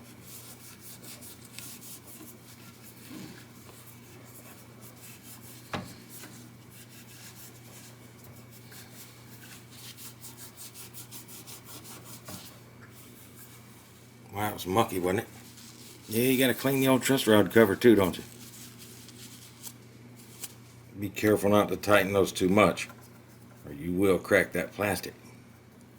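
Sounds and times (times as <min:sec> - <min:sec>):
damp cloth rubbing: 0:00.0 - 0:20.8.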